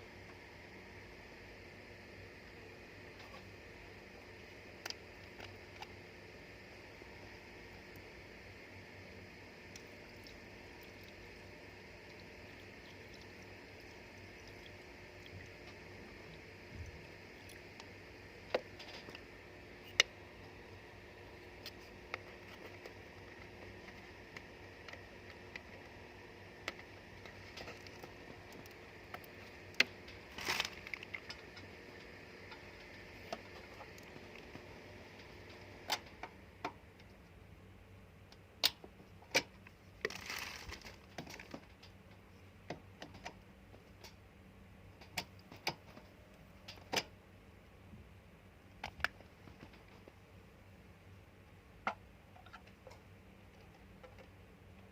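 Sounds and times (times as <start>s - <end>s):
faint steady hum: 0.0s - 54.9s.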